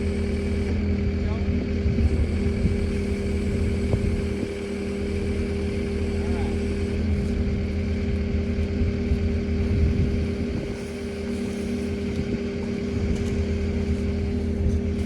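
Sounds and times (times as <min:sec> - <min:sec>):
skid steer engine running: 0:00.0 - 0:15.0
wind noise on microphone: 0:01.5 - 0:04.6, 0:07.0 - 0:15.0.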